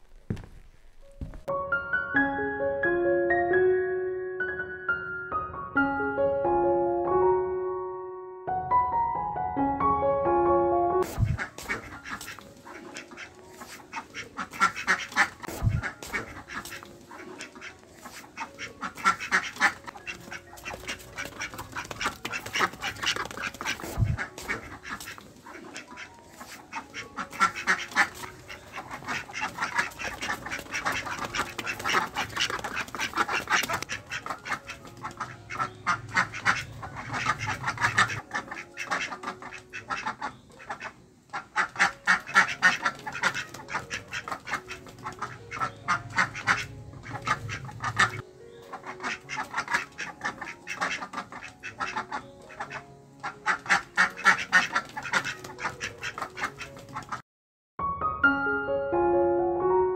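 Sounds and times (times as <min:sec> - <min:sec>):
ducks quacking: 0:11.0 - 0:57.2.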